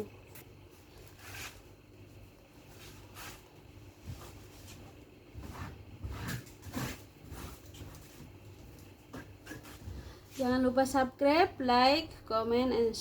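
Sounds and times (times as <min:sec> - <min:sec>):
rustles and knocks of handling: 0:02.2 - 0:10.6.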